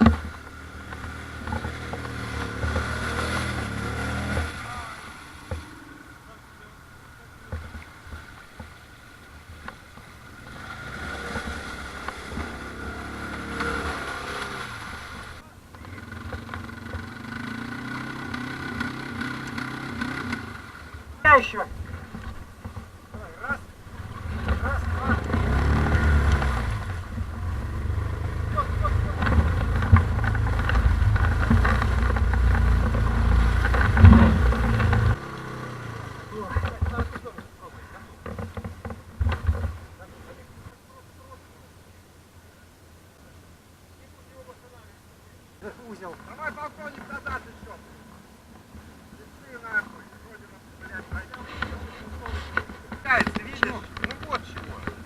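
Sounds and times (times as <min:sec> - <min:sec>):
atv engine revving hard: 0:00.0 - 0:06.3, 0:10.2 - 0:40.3
knocks and clatter: 0:29.0 - 0:35.2, 0:38.2 - 0:39.9, 0:51.1 - 0:55.0.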